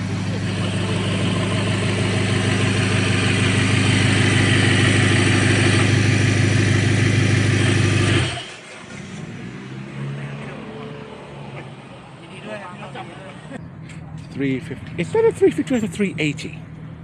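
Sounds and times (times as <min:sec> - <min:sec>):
car engine running steady: 0:00.0 - 0:09.0.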